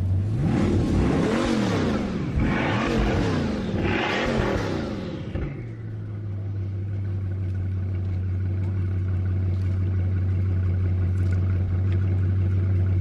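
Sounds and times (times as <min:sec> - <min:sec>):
car engine revving: 0:00.0 - 0:07.6
car engine idling: 0:00.0 - 0:13.0.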